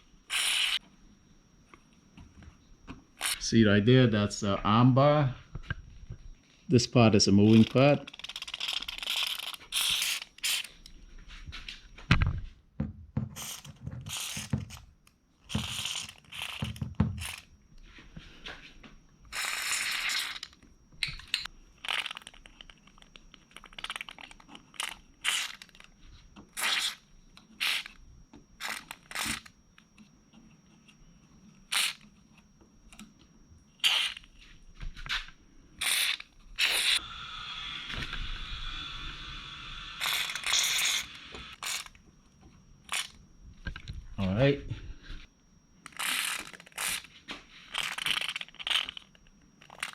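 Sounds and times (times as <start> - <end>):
aerosol spray hissing: 36.6 - 41.6.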